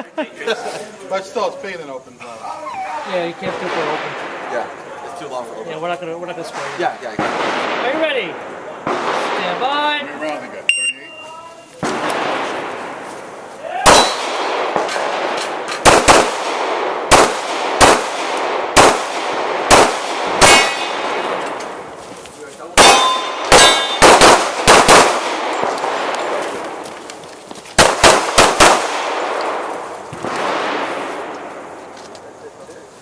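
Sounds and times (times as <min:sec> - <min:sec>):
pistol shots echoing: 0:13.8 - 0:21.9, 0:22.8 - 0:26.9, 0:27.8 - 0:31.3
steel targets ringing: 0:20.4 - 0:21.0, 0:22.8 - 0:24.1.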